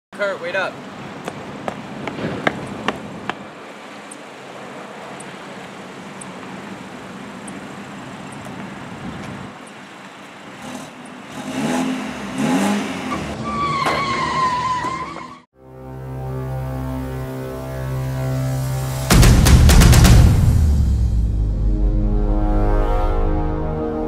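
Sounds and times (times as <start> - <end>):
quick footsteps on pavement: 1.1 - 4.3, 7.4 - 10.5
car engine revving and accelerating: 10.5 - 13.4.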